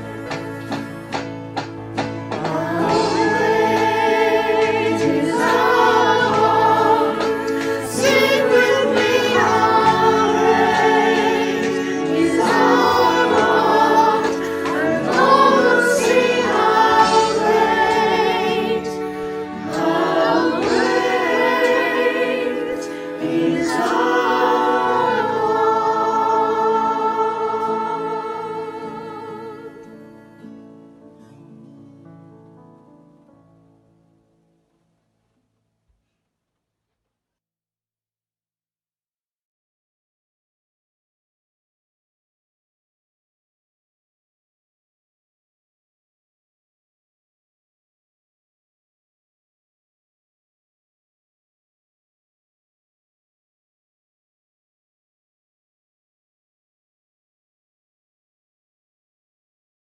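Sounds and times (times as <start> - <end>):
musical backing: 0.0 - 35.0
choir singing worship song: 2.2 - 30.2.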